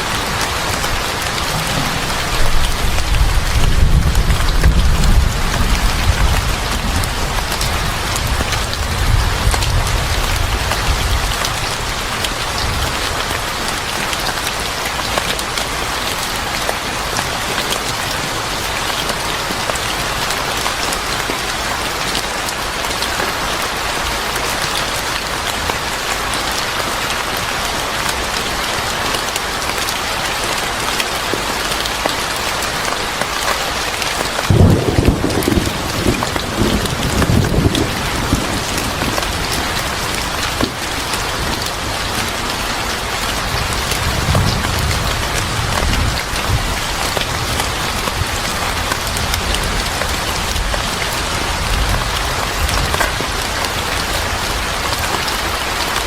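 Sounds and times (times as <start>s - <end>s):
thunder rumbling: 0.0s - 12.9s, 34.5s - 54.7s
heavy rain falling: 0.0s - 56.0s.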